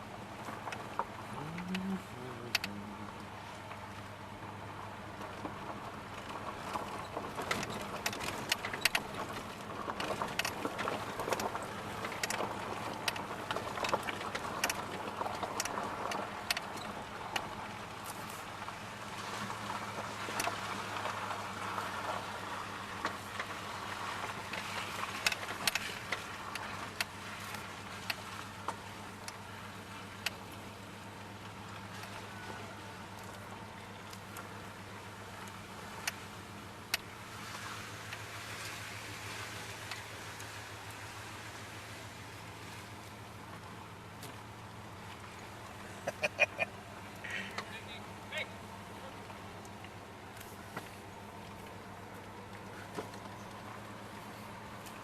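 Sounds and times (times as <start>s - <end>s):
pickup engine hum from inside cab: 0.0s - 55.0s
small clicks and rattles: 5.2s - 38.8s.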